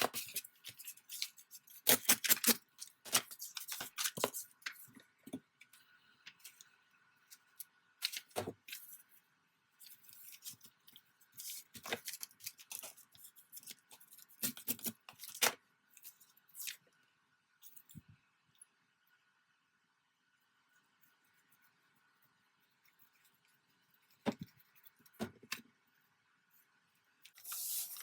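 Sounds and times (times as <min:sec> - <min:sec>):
scissors snipping paper: 0:00.0 - 0:04.4, 0:11.4 - 0:15.5
paper rustling: 0:27.3 - 0:28.0.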